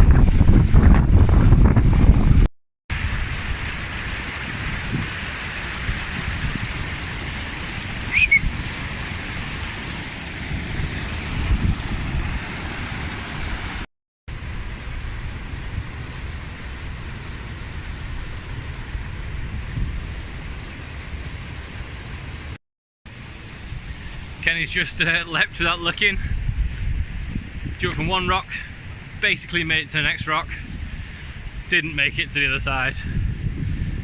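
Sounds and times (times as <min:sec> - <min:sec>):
wind buffeting microphone: 0:00.0 - 0:03.5, 0:04.4 - 0:13.8, 0:17.7 - 0:21.5, 0:25.6 - 0:29.2, 0:30.0 - 0:34.0
stream water rushing: 0:02.9 - 0:25.8.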